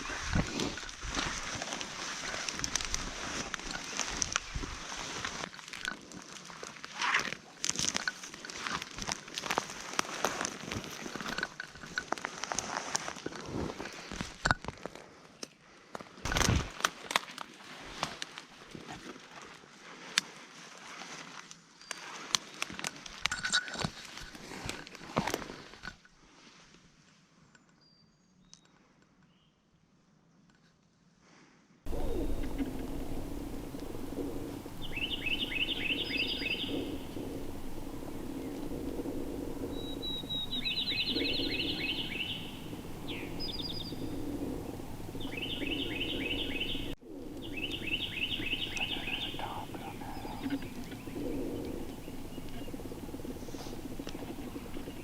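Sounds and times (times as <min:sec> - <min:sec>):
footsteps crunching dry leaves: 0:00.0 - 0:05.7, 0:06.3 - 0:11.2
faint high bird chirps: 0:31.9 - 0:38.7, 0:39.3 - 0:55.0
songbird singing rapid high notes: 0:31.9 - 0:53.2
low background noise: 0:31.9 - 0:55.0.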